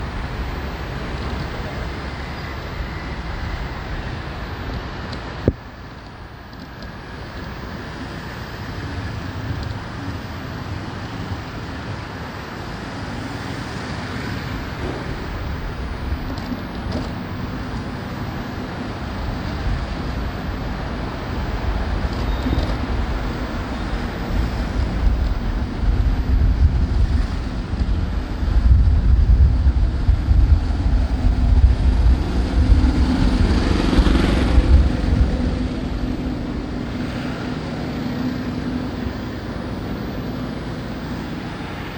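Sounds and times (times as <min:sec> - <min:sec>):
motorbike engine hum: 0:00.0 - 0:41.9
road noise: 0:00.0 - 0:41.9
wind buffeting microphone: 0:12.6 - 0:37.5.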